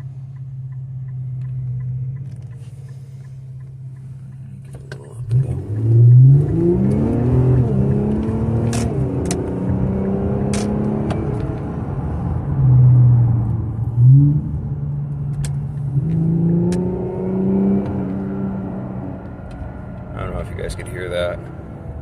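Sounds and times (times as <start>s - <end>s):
car engine accelerating hard: 4.5s - 22.0s.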